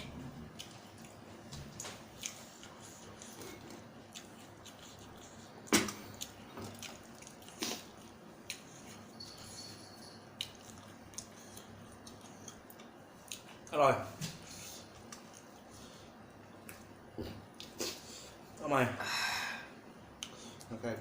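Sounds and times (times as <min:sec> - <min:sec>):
wet eating sounds: 0:00.0 - 0:08.9.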